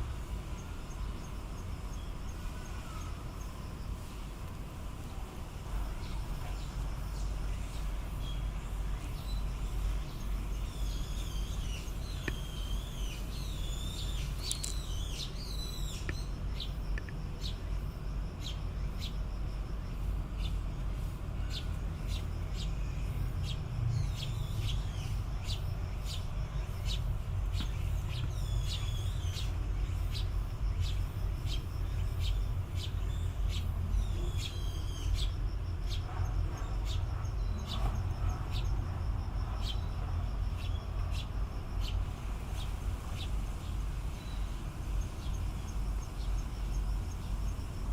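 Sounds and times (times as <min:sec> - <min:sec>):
low background rumble: 0:00.0 - 0:47.9
otters chirping: 0:08.7 - 0:17.7
short clicks: 0:14.4 - 0:14.9.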